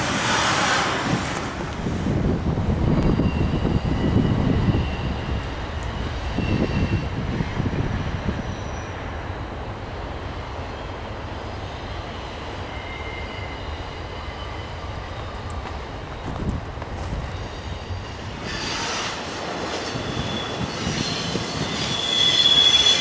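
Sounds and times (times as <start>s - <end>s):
freight train cars rumbling: 0.0s - 23.0s
high-pitched wheel squeals: 2.8s - 9.0s, 11.7s - 15.2s, 17.3s - 23.0s.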